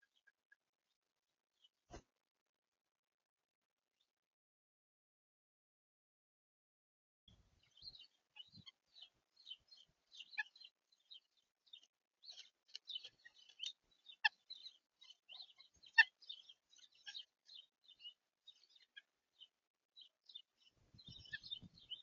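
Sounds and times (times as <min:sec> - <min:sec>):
small birds chirping: 0:07.4 - 0:22.0.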